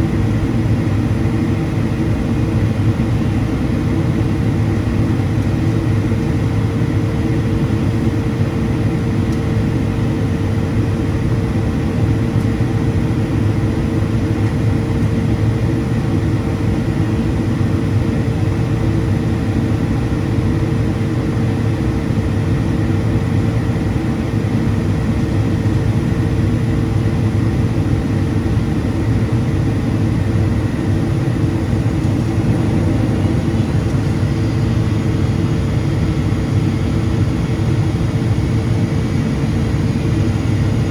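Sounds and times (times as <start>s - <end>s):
airplane cabin drone: 0.0s - 40.9s
steady hum: 29.7s - 40.9s.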